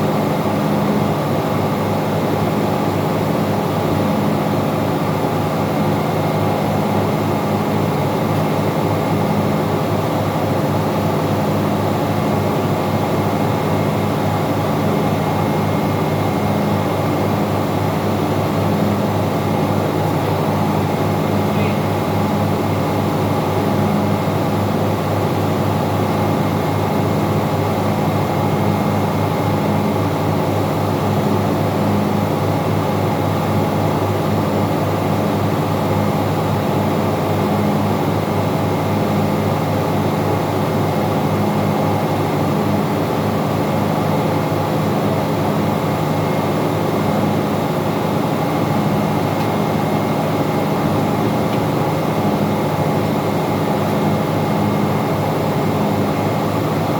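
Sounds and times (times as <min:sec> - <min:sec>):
engine-room machinery drone: 0:00.0 - 0:56.9.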